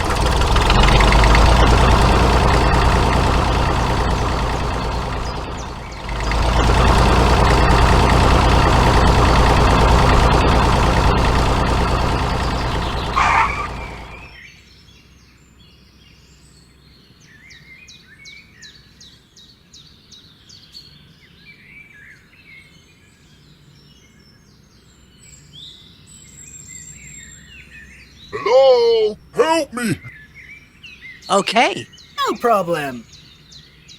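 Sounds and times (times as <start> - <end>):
truck engine running: 0.0 - 14.4
birds chirping: 1.4 - 14.3.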